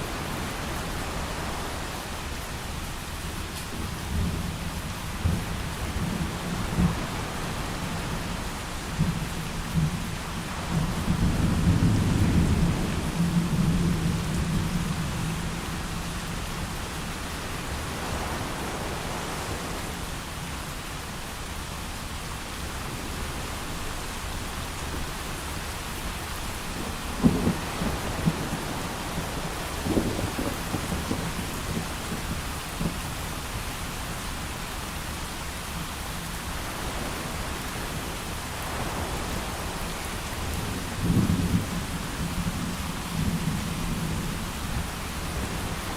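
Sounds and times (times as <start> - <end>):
heavy rain: 0.0 - 45.9
thunder rumbling: 26.5 - 33.1.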